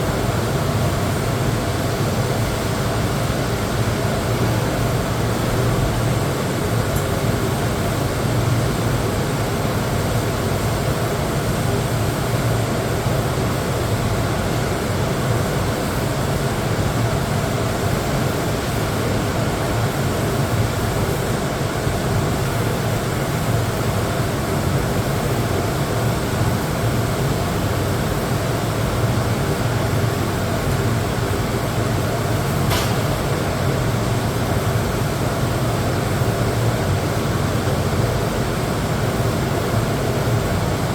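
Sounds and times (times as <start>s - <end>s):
sharp click: 32.7s - 33.1s.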